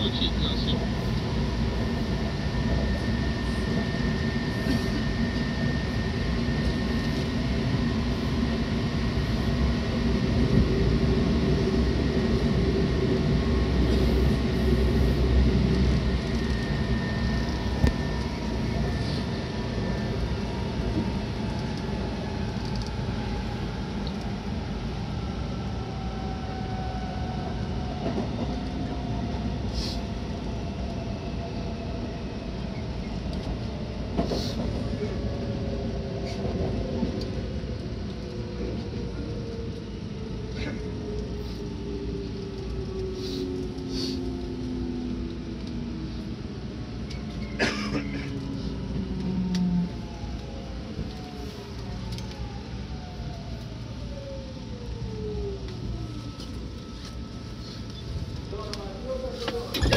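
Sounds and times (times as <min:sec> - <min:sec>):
train running noise: 0:00.0 - 0:59.9.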